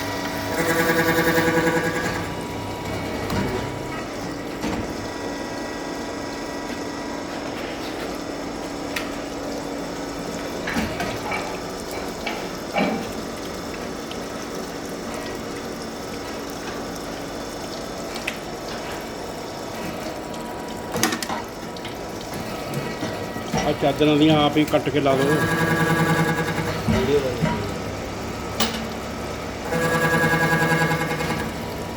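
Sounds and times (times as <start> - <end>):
milling machine humming and whining: 0.0 - 13.0, 21.7 - 31.9
machine clunks: 28.6 - 29.1.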